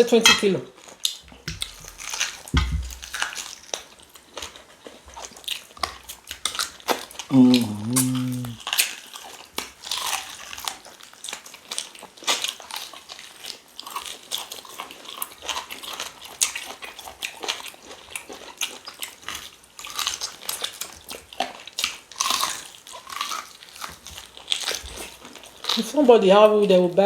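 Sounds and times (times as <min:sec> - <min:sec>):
chewing and crunching meat: 0:00.7 - 0:27.0
mouth clicks and smacks: 0:07.4 - 0:08.6.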